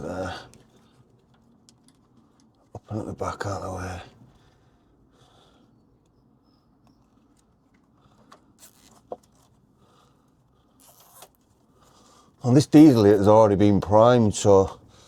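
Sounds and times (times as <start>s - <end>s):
soft handling rustles and scrapes: 0.5s - 2.8s, 5.8s - 13.0s.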